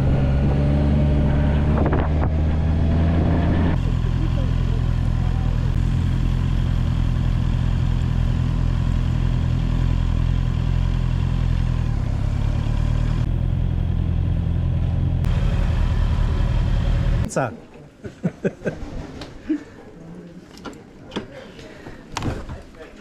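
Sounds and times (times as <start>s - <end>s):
motorcycle engine running: 0.0s - 17.3s
road and wind noise: 0.0s - 17.3s.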